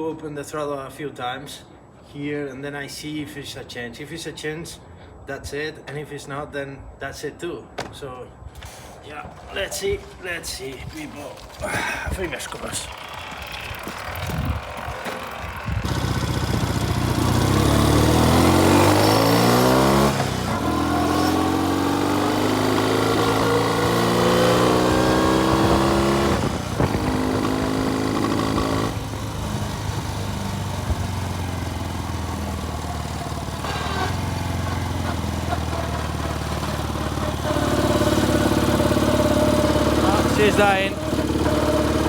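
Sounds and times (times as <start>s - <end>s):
motorcycle engine accelerating: 11.4s - 42.0s.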